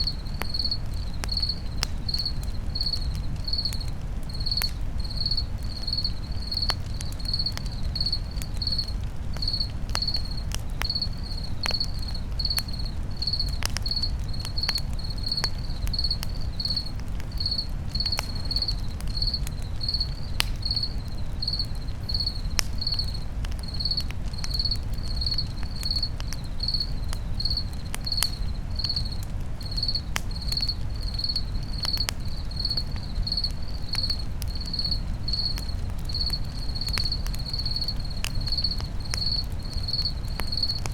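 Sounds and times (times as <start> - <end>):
campfire crackling: 0.0 - 40.9
cricket chirping: 0.0 - 40.9.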